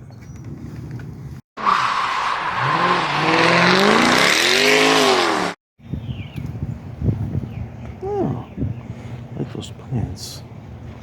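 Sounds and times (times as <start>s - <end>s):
car engine revving: 1.6s - 5.6s.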